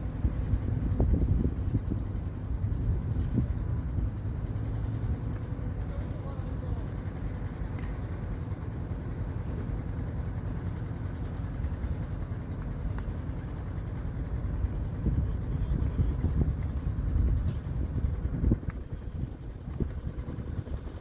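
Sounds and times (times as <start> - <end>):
wind buffeting microphone: 0.0 - 4.6, 14.5 - 21.0.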